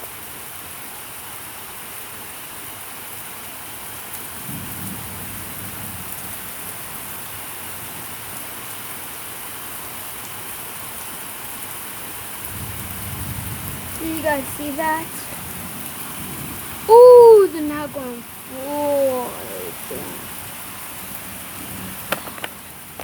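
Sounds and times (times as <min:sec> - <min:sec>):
heavy rain falling: 0:00.0 - 0:23.0
thunder rumbling: 0:12.5 - 0:20.6.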